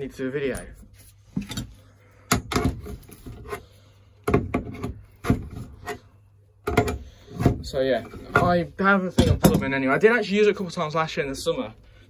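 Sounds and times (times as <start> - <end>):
hard objects knocking and clicking: 2.3 - 3.4, 4.2 - 6.0, 6.6 - 9.8.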